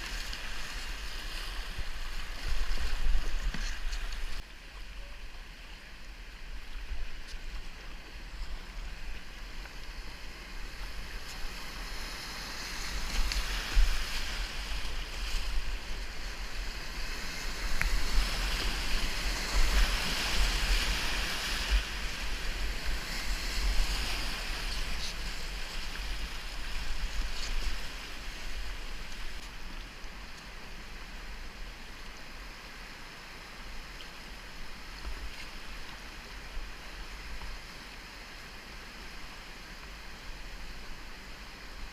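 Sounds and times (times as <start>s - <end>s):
wind rumble on microphone: 0.0s - 4.4s, 5.3s - 32.5s.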